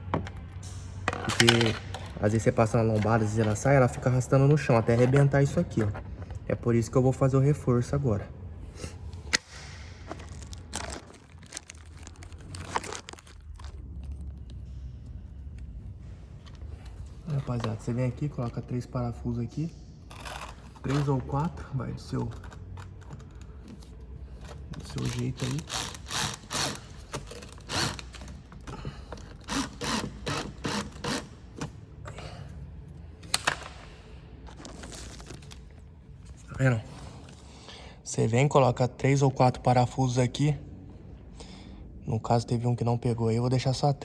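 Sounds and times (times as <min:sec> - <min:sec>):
car part scraping and clicking: 0:00.2 - 0:03.9, 0:22.2 - 0:31.8.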